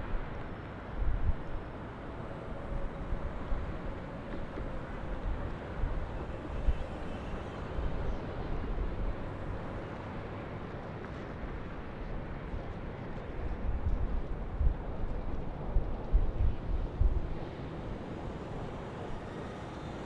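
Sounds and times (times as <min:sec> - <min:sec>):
boat engines: 0:01.6 - 0:13.6, 0:14.3 - 0:20.0.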